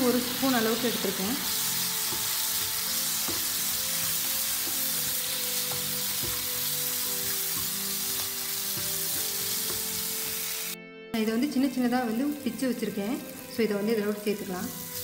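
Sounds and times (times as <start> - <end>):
food sizzling in a pan: 0.0 - 10.8, 11.4 - 15.0
background music with held notes: 0.0 - 15.0
wooden spatula stirring and scraping: 1.8 - 10.4.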